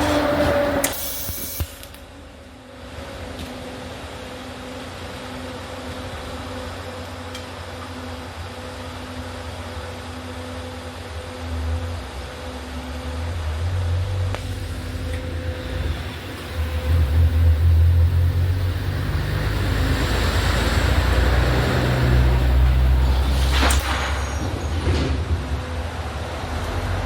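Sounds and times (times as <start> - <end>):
arc welding hiss: 0.0 - 2.1, 14.4 - 24.5
faint machine hum: 0.0 - 26.4
low rumble: 14.2 - 26.6.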